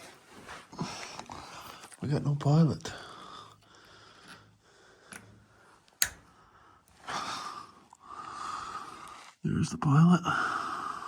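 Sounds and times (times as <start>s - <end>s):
water heater pilot control clicks: 5.1s - 6.4s.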